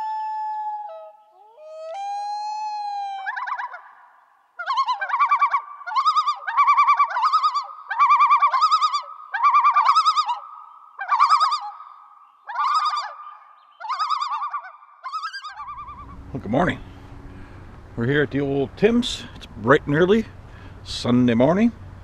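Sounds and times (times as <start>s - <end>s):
bird warbling calls: 3.1s - 17.0s.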